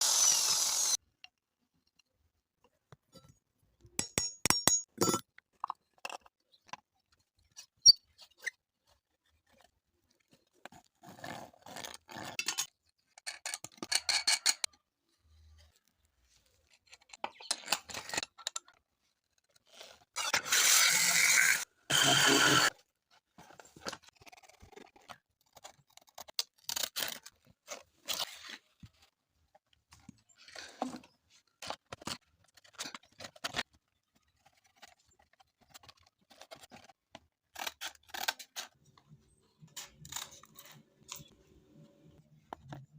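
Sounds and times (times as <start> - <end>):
drill-powered sander running: 0.0 - 1.0, 20.8 - 22.7.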